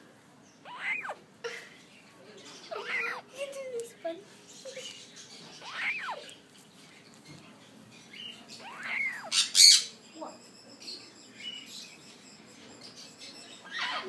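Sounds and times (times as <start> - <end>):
bird squawking harshly: 0.6 - 1.2, 2.7 - 3.3, 5.6 - 6.3, 8.6 - 9.9.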